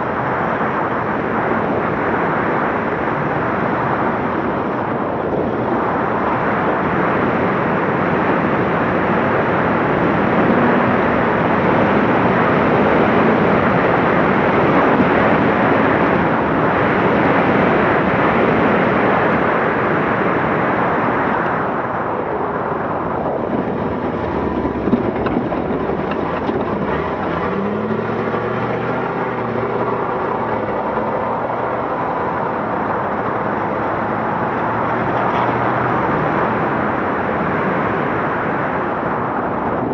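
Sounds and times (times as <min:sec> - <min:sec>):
truck driving at speed: 0:00.0 - 0:39.9
diesel engine revving: 0:22.3 - 0:38.2.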